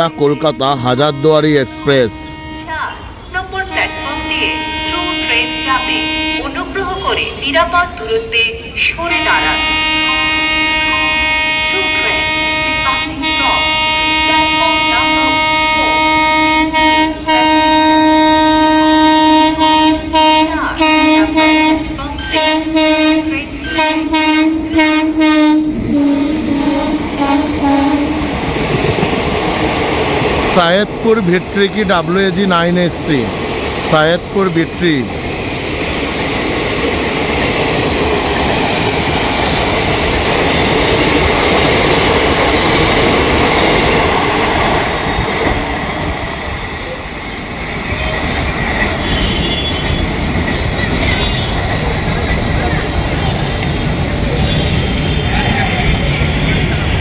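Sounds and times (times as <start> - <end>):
locomotive horn blasts: 0.0 - 7.1, 9.1 - 28.4, 49.0 - 50.2, 51.0 - 51.8
train rumbling past: 0.0 - 57.0.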